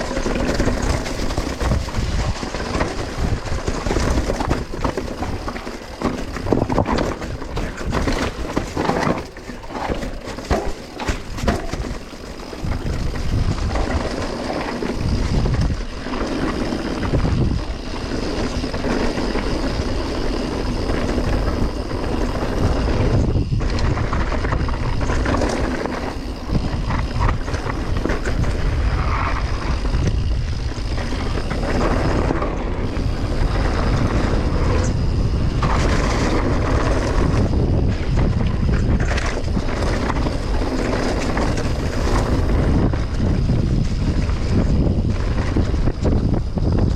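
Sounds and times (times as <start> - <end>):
bike clattering over bumps: 0.0 - 46.9
tyres rolling over rough ground: 0.0 - 46.9
wind buffeting microphone: 0.0 - 46.9.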